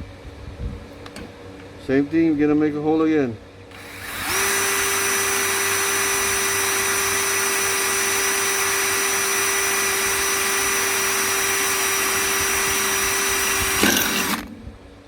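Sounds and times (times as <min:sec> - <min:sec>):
electric drill drilling metal: 0:03.7 - 0:14.5.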